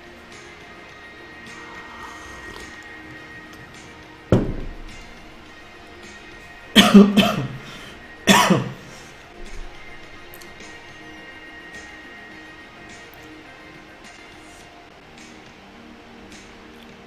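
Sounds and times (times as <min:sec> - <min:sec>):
quiet background music: 0:00.0 - 0:17.0
man coughing: 0:06.8 - 0:09.1.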